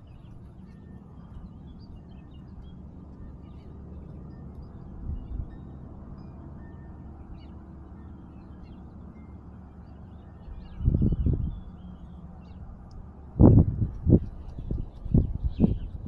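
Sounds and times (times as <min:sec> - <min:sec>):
low outdoor rumble: 0:00.0 - 0:16.0
loud low rumble: 0:10.5 - 0:16.0.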